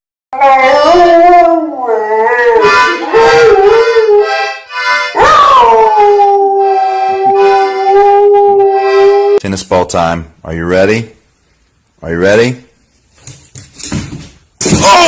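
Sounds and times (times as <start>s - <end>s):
dog howling: 0.4s - 4.4s, 5.2s - 9.4s.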